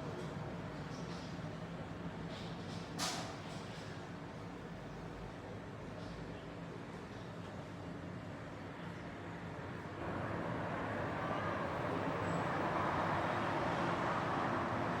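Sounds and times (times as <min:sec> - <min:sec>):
road traffic rumble: 0:09.9 - 0:15.0.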